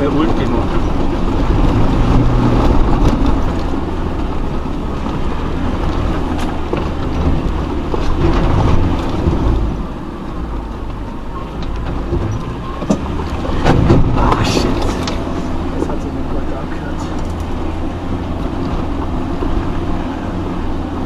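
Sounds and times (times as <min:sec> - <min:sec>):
vehicle engine at low revs: 0:00.0 - 0:21.0
vehicle knocks: 0:11.6 - 0:16.1.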